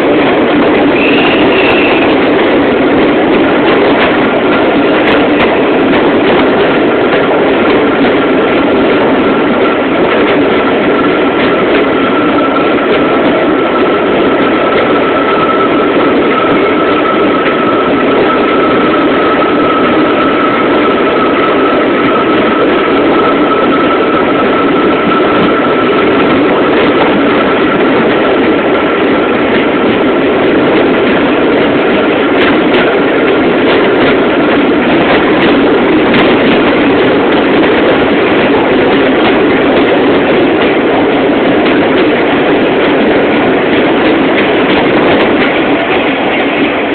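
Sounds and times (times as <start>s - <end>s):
train wheels rumbling: 0.0s - 46.9s.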